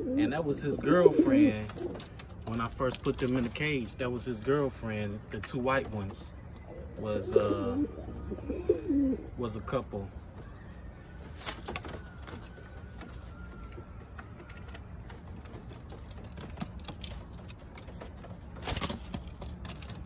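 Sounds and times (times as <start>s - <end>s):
pigeons scuffling in a cage: 0.1s - 6.3s, 11.2s - 20.0s.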